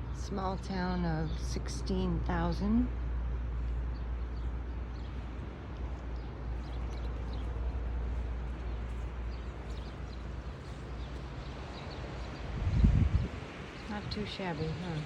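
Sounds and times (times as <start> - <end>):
low rumble and hiss: 0.0 - 15.0
small birds chirping: 3.6 - 15.0.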